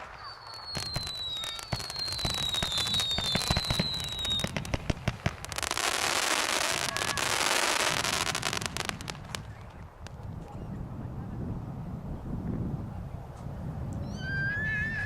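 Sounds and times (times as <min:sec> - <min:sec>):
firework whistles falling in pitch: 0:00.0 - 0:09.5
dense firework crackling: 0:00.0 - 0:10.4
firework pops: 0:00.0 - 0:10.6.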